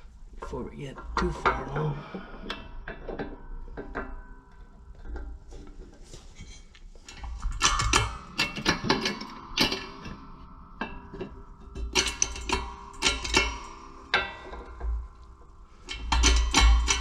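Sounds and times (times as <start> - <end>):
steel parts clinking and tapping: 7.0 - 17.0.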